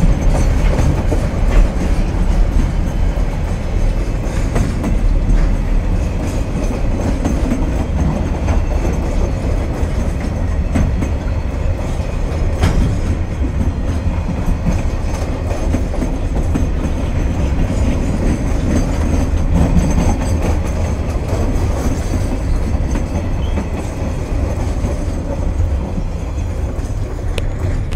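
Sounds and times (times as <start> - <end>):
steel wheels rumbling on rail: 0.0 - 27.9.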